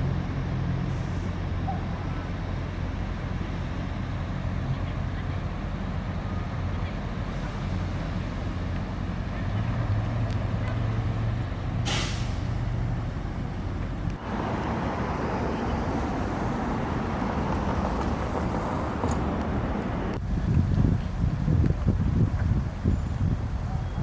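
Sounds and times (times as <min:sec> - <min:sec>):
vehicle engine humming: 0:00.0 - 0:24.0
short sharp hiss: 0:11.8 - 0:12.5.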